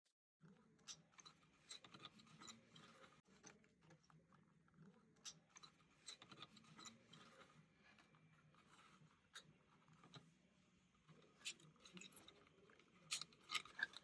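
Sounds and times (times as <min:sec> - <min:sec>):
clicks and rubbing of wire handwork: 0:11.4 - 0:14.0.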